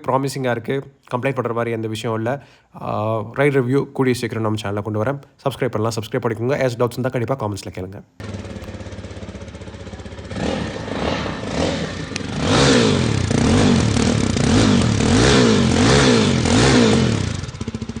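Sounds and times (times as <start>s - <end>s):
motorcycle engine revving: 8.2s - 18.0s.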